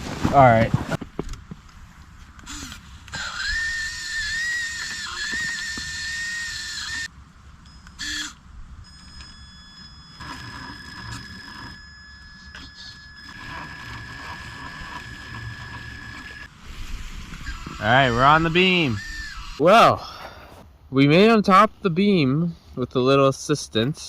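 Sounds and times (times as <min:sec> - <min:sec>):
electric motor whining: 0:02.4 - 0:07.1, 0:07.9 - 0:19.6.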